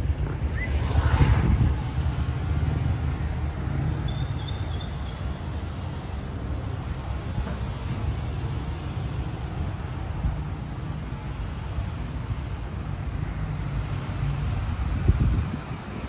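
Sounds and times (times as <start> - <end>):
vehicle passing: 0.0 - 4.3
traffic rumble: 0.0 - 16.0.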